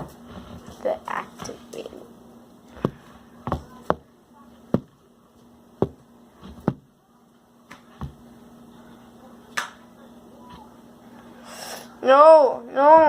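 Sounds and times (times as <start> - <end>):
hard objects knocking on counter: 5.8 - 6.9.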